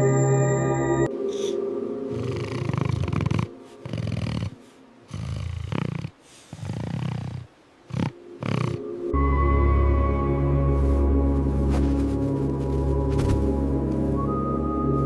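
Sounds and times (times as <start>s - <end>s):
low musical drone: 0.0s - 5.1s, 8.2s - 15.0s
heavy snorting breaths: 1.2s - 9.0s.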